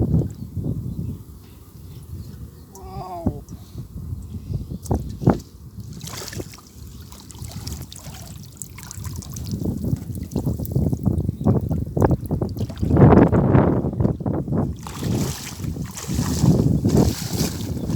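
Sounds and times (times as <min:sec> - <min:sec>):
water splashing and trickling: 0:04.8 - 0:17.9.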